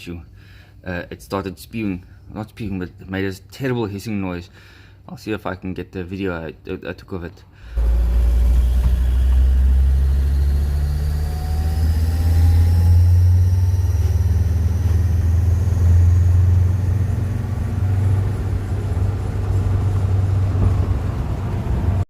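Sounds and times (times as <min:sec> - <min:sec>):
diesel engine rumbling: 0:07.7 - 0:22.0
exhaust leak hissing: 0:07.8 - 0:20.4.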